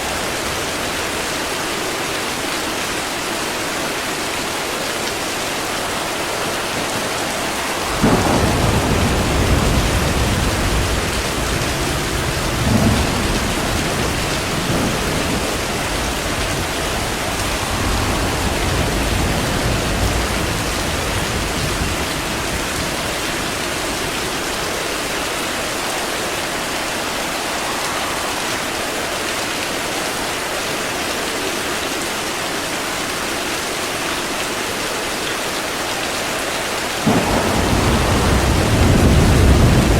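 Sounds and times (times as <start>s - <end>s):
heavy rain: 0.0s - 39.9s
low rolling thunder: 5.1s - 30.4s, 37.0s - 39.9s
thunderclap: 5.7s - 30.1s, 37.0s - 39.9s.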